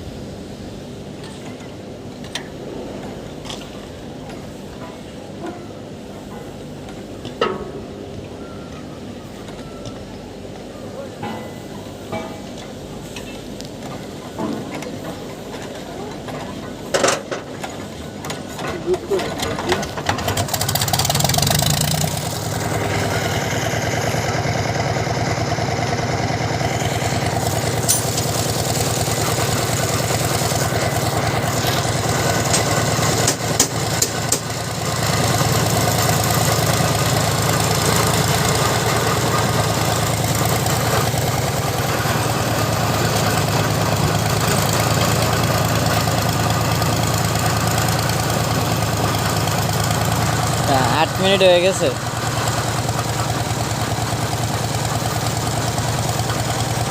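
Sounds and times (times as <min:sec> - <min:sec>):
diesel engine idling: 0:17.8 - 0:56.9.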